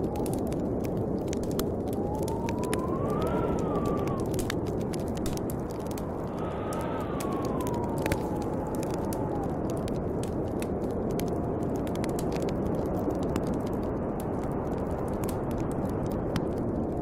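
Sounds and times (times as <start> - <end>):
wind blowing: 0.0 - 17.0
wood fire crackling: 0.0 - 17.0.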